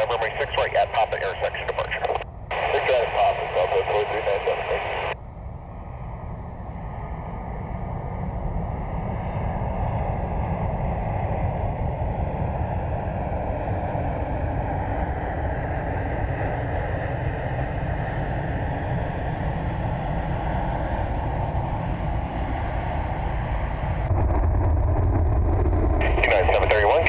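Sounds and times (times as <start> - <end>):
jet engines roaring: 0.0 - 27.0
wind buffeting microphone: 5.2 - 26.8.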